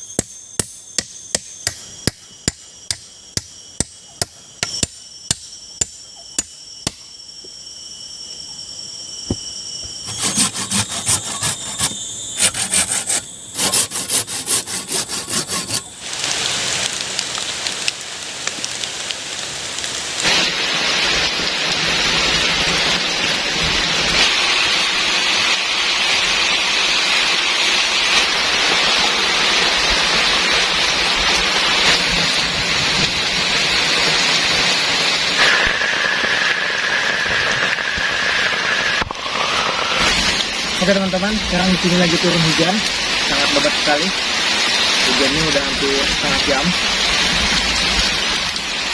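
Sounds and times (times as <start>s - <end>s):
rasping hand tool strokes: 10.0s - 16.0s
heavy rain: 15.9s - 48.9s.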